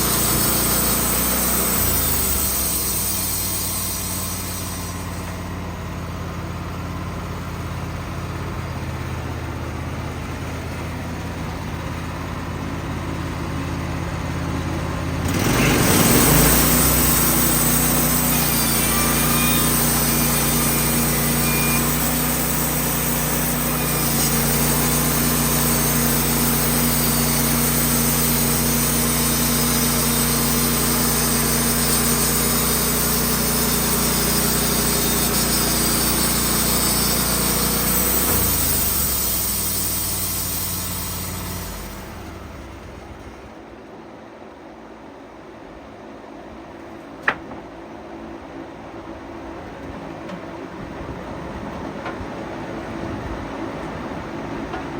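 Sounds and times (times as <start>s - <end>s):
saw blade hissing through log: 0.0s - 5.7s, 15.2s - 42.9s
band sawmill running: 0.0s - 43.8s, 49.0s - 54.9s.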